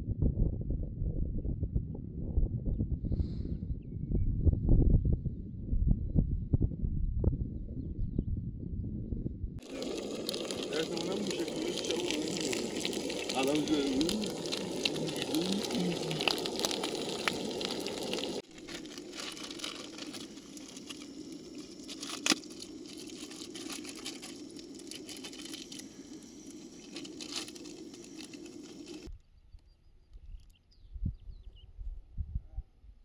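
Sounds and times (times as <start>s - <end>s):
wood fire crackling: 9.6s - 29.1s.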